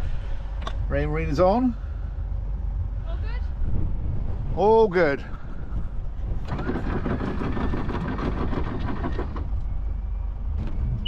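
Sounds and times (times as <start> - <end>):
boat engine rumble: 0.0 - 11.0
wind: 0.0 - 11.0
anchor windlass rattling chain: 6.4 - 9.5.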